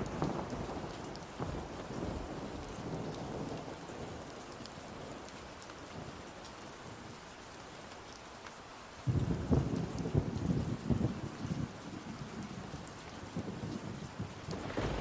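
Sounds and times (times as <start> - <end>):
thunder rumble: 0.0 - 2.5, 13.4 - 15.0
steady rain: 0.0 - 15.0.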